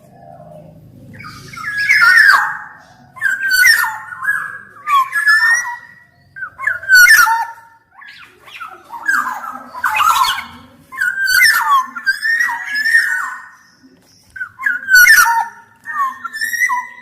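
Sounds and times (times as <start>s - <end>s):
bird squawking: 0.0s - 17.0s
bird singing fluty whistles: 1.2s - 17.0s.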